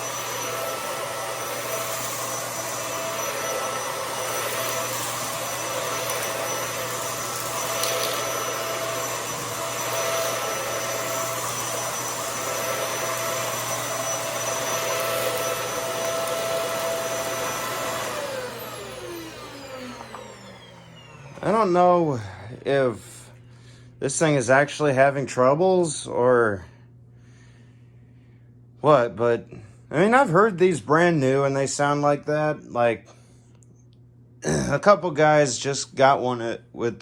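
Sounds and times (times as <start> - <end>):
vacuum cleaner whining: 0.0 - 25.7.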